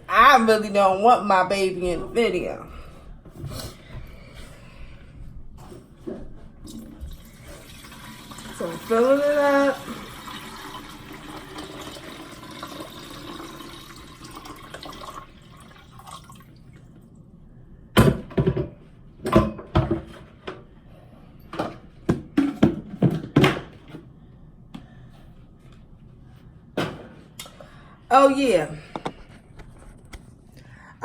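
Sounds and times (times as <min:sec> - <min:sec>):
tap water running into tank: 0:06.6 - 0:16.9.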